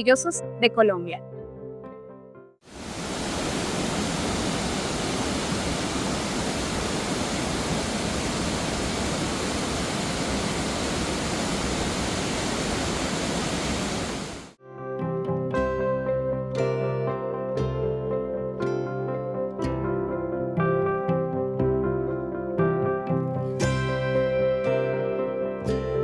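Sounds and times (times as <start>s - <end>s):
river water rushing over rocks: 2.7s - 14.6s.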